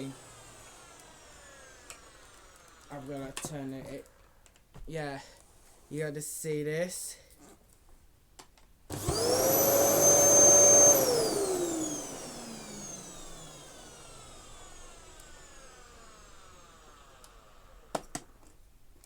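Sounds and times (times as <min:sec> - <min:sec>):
vacuum cleaner motor whine: 0:00.0 - 0:03.6, 0:08.9 - 0:18.4.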